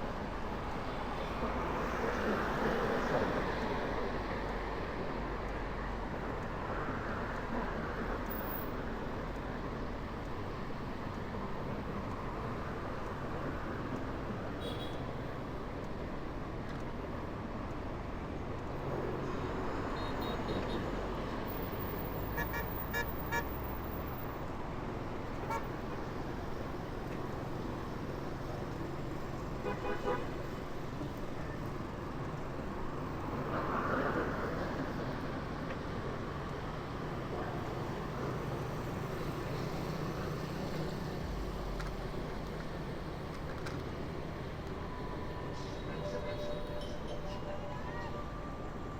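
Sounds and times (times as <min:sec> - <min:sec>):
traffic rumble: 0:00.0 - 0:48.9
car horn honks: 0:22.3 - 0:23.5.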